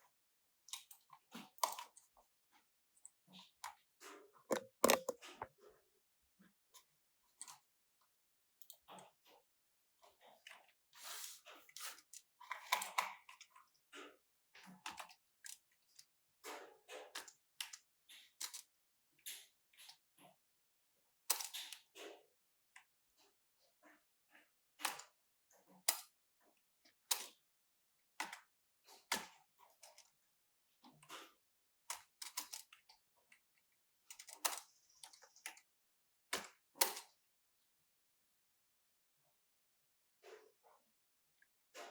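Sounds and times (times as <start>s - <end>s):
computer parts being handled: 4.5s - 5.2s
hard objects clicking and knocking: 4.5s - 5.4s.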